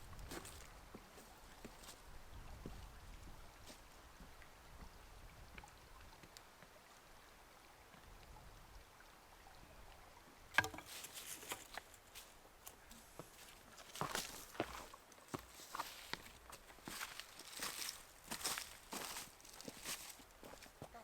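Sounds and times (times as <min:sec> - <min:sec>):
rustling and crunching in dry leaves: 0:16.8 - 0:20.2.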